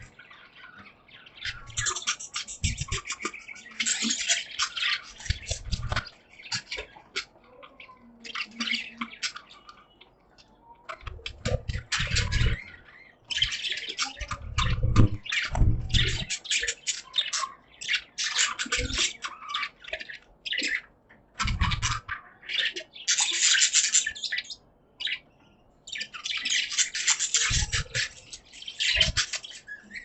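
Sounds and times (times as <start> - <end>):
budgerigars chirping: 0.0 - 30.0
low thumps: 14.4 - 16.2.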